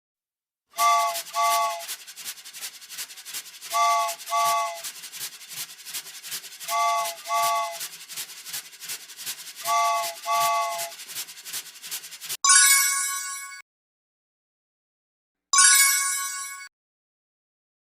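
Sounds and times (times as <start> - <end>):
train whistle toots: 0.8 - 1.9, 3.7 - 4.9, 6.6 - 7.8, 9.6 - 11.0
cartoon train chugging: 0.8 - 12.4.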